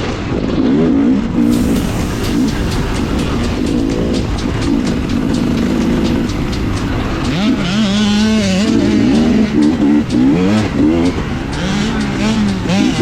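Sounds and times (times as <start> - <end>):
dirt bike engine revving: 0.7 - 13.0.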